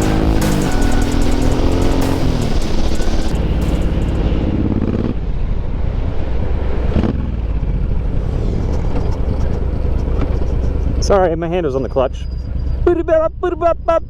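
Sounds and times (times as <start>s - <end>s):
motorcycle engine running: 0.0s - 6.0s, 6.6s - 11.4s
wind and road noise: 1.2s - 14.0s.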